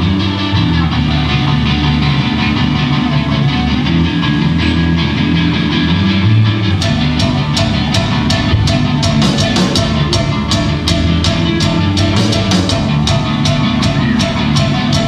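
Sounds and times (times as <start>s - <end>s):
rock band playing live: 0.0s - 15.0s
drum kit beating: 6.7s - 15.0s.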